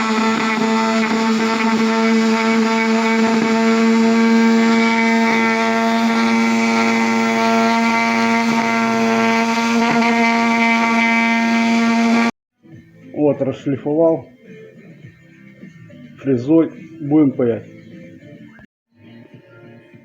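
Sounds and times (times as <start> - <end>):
rotary tool grinding plastic: 0.0 - 12.3.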